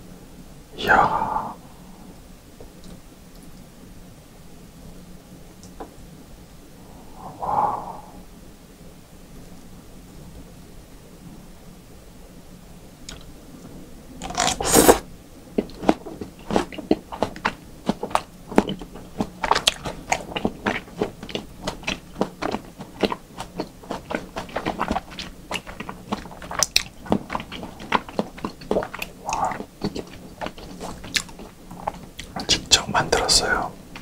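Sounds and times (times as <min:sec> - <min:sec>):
wet clicky chewing: 0:15.6 - 0:34.0.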